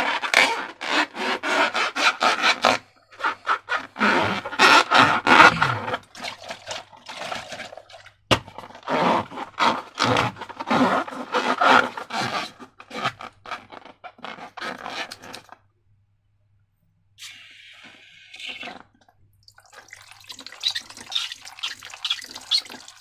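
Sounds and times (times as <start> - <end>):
slime being scraped: 0.0 - 6.1.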